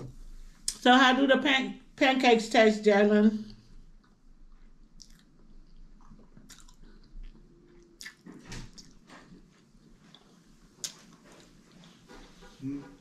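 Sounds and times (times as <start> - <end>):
person chewing and biting food: 4.0 - 9.4
mouth clicks and smacks: 4.9 - 7.4, 8.0 - 9.0.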